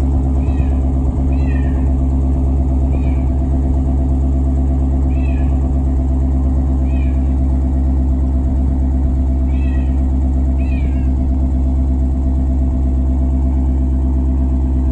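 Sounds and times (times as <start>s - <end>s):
car engine idling: 0.0s - 14.9s
cat meowing: 0.4s - 2.0s, 2.8s - 3.5s, 5.0s - 5.7s, 6.8s - 7.4s, 9.4s - 11.4s.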